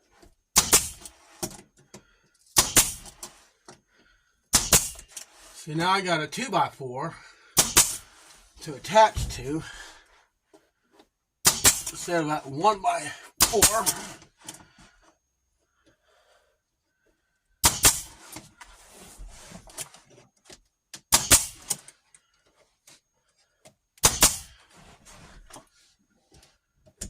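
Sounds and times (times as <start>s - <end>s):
handling noise: 8.6s - 9.9s.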